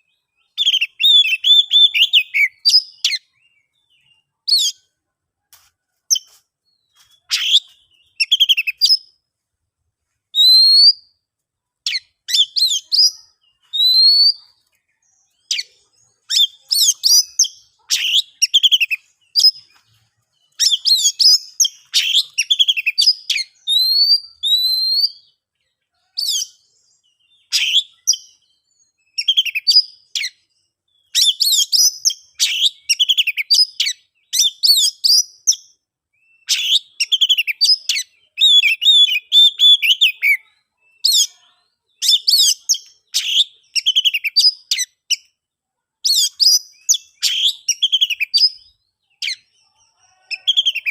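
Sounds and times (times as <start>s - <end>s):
bird singing whistled phrases: 0.1s - 4.8s, 7.3s - 9.1s, 10.4s - 11.1s, 11.9s - 14.5s, 20.5s - 25.3s, 27.3s - 28.4s, 29.1s - 30.4s, 31.0s - 41.3s, 41.9s - 45.3s, 46.0s - 49.5s.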